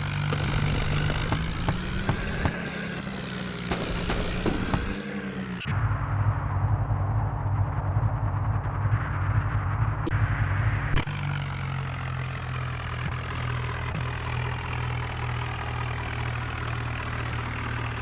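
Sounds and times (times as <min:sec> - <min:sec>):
tractor diesel engine: 0:00.0 - 0:06.1, 0:10.1 - 0:18.0.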